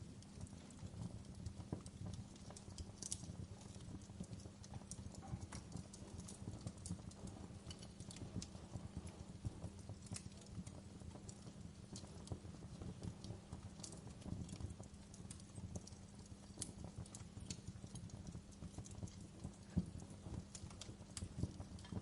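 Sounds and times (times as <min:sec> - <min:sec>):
rumble of flames: 0:00.0 - 0:22.0.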